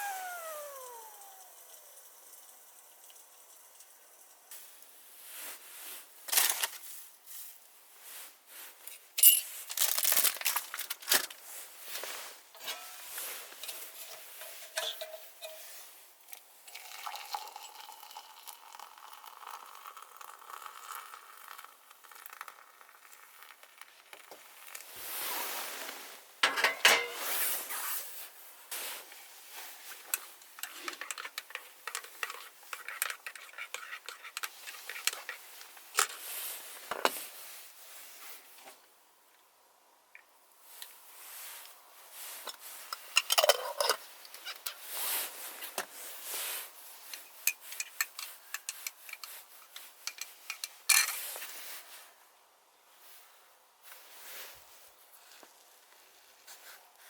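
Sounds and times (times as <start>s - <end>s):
food rustling and crinkling: 5.4s - 7.1s, 9.4s - 12.4s, 22.3s - 37.4s, 54.0s - 57.0s
dishes and utensils clinking: 9.0s - 9.6s, 12.6s - 15.8s, 26.4s - 27.4s, 42.9s - 44.7s.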